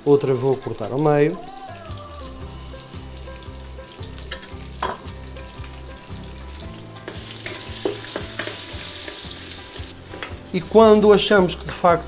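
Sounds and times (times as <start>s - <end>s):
meat and garlic sizzling in oil: 0.0s - 12.0s
spatula stirring: 7.0s - 10.4s.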